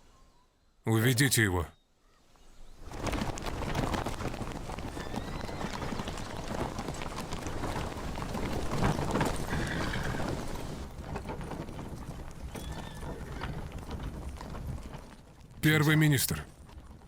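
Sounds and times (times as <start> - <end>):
horse hooves clip-clopping: 2.8 - 15.6, 16.5 - 17.0.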